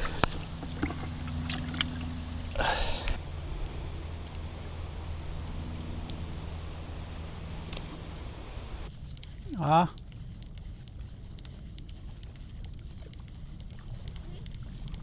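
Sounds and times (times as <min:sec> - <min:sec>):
bait splashing into water: 0:00.0 - 0:08.0
fishing gear clicks: 0:00.0 - 0:08.1
steady low hum: 0:00.0 - 0:15.0.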